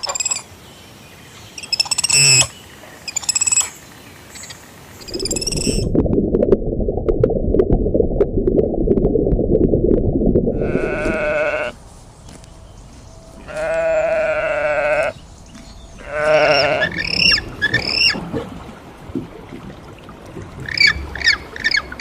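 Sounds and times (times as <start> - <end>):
animal bleating calls: 10.5 - 11.8, 13.4 - 15.2, 16.0 - 18.2.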